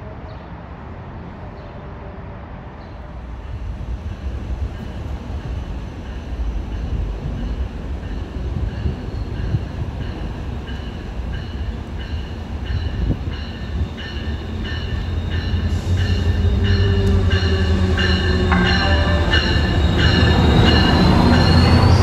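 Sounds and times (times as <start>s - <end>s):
train engine and wheel rumble: 0.0s - 22.0s
locomotive bell ringing: 10.8s - 22.0s.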